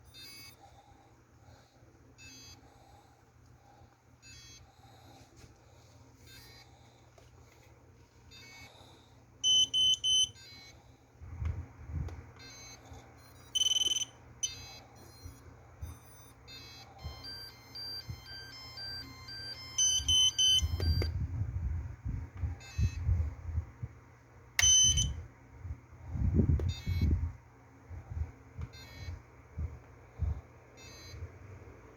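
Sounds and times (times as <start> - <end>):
short electronic beeps: 9.4 - 10.7, 12.4 - 21.0, 24.6 - 25.2.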